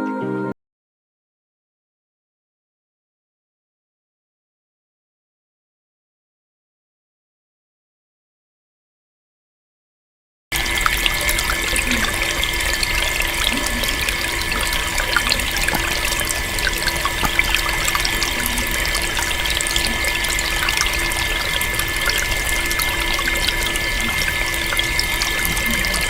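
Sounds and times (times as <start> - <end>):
steady hum: 10.6 - 26.0
water trickling and splashing: 10.6 - 26.0.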